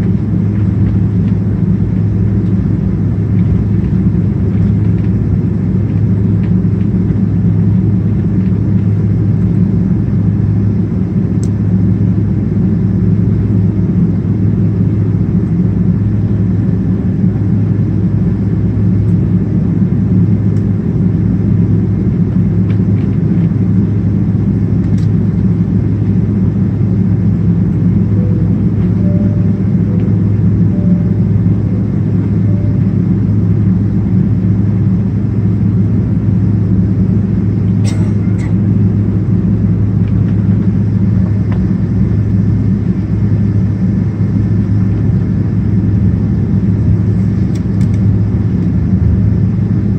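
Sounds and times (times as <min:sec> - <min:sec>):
airplane cabin engine drone: 0:00.0 - 0:49.9.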